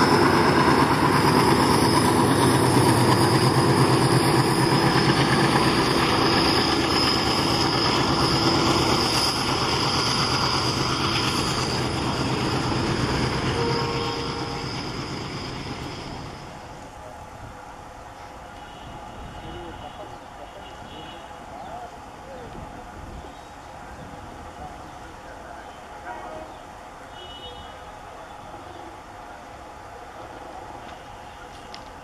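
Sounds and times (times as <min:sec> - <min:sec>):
high wheel squeal: 0:00.0 - 0:16.7.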